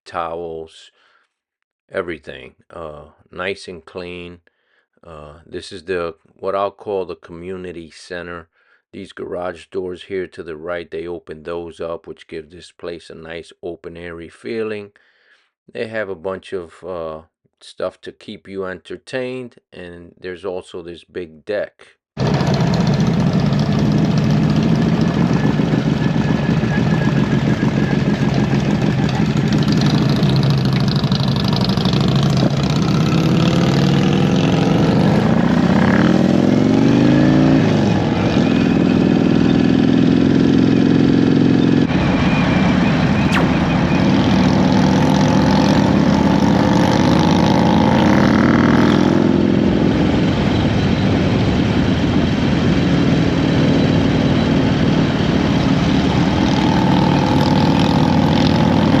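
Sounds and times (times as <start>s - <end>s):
motorcycle engine accelerating: 22.2s - 41.9s, 43.3s - 59.0s.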